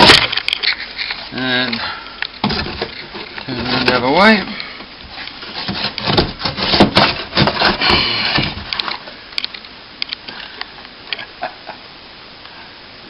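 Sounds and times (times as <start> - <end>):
plasterboard cracking: 0.0 - 0.6, 2.4 - 9.1.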